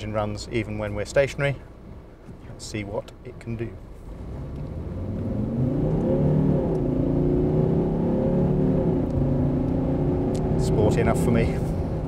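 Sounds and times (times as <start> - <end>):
diesel engine accelerating hard: 4.0 - 12.0.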